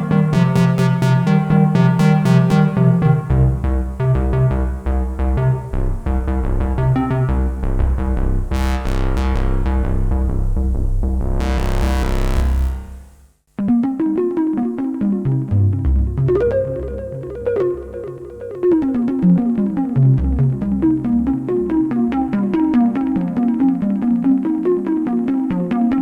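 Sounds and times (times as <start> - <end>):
pulsing synth bass: 0.0 - 13.2
synthesizer note pattern: 0.0 - 13.2.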